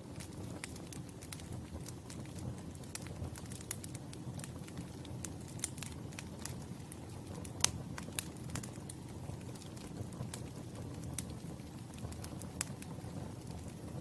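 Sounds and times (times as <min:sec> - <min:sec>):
burning wood crackling and popping: 0:00.0 - 0:14.0
low rumble of flames: 0:00.0 - 0:14.0.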